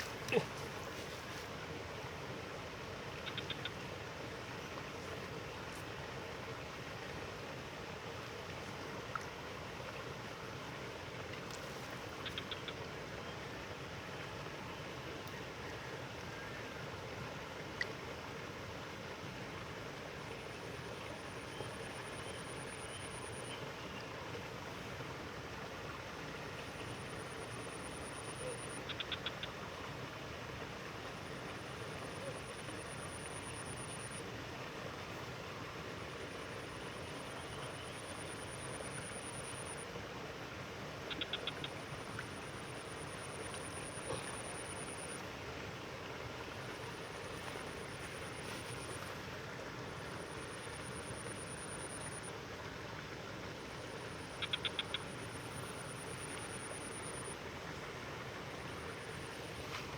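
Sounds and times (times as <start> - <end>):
frog-like clicking calls: 3.2 - 4.0, 11.5 - 12.9, 26.8 - 29.6, 31.2 - 34.2, 36.2 - 39.8, 41.0 - 45.2, 50.0 - 52.3, 53.6 - 57.4.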